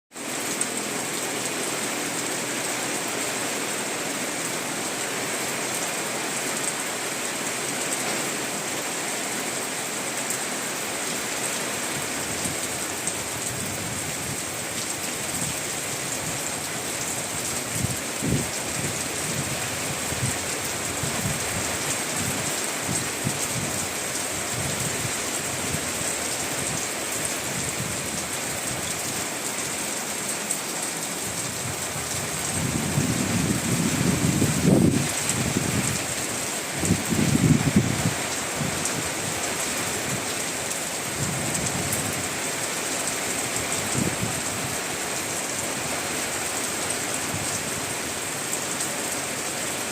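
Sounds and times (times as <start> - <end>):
heavy rain hiss: 0.2 - 49.9
wind gusting against microphone: 12.0 - 29.2, 31.2 - 40.3, 41.0 - 42.4, 43.6 - 45.0.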